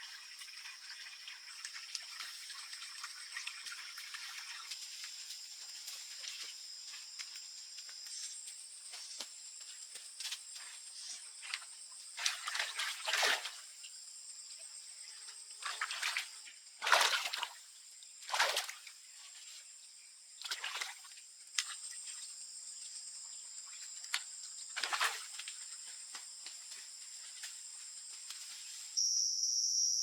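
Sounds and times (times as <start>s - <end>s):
insects trilling: 0.0s - 30.0s.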